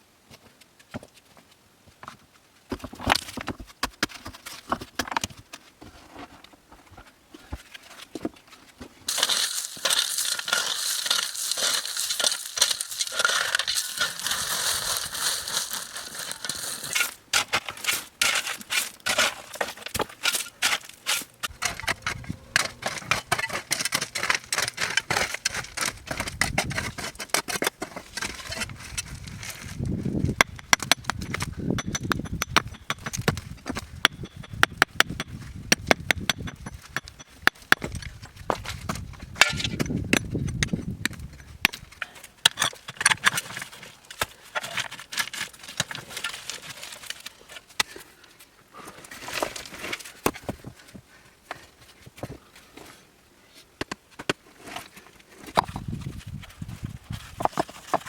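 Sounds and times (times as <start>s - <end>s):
heavy low rumbling scrape: 21.5s - 23.1s
knocks and scrapes of material: 53.9s - 58.0s.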